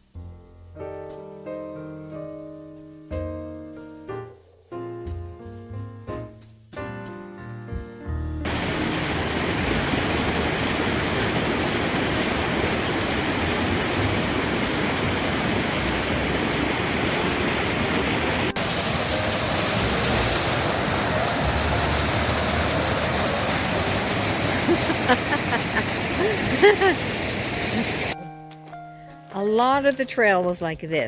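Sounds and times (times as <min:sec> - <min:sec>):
water rushing in mountain stream: 0:08.5 - 0:28.2.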